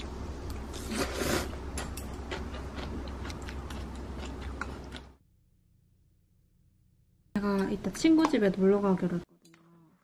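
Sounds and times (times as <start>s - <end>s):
steady low hum: 0.0s - 8.6s
crunchy chewing: 2.2s - 5.2s.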